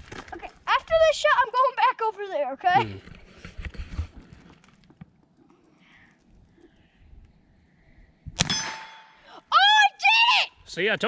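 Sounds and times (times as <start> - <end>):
revolver shot: 8.4 - 9.2
bullet ringing on metal target: 8.4 - 9.3.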